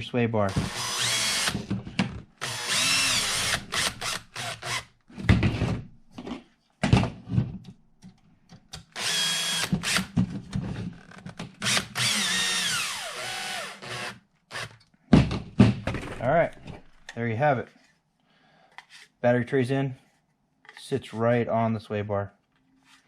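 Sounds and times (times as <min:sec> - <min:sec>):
cordless drill driving screws: 0:00.5 - 0:01.7, 0:02.4 - 0:04.9, 0:08.9 - 0:10.2, 0:11.0 - 0:14.8.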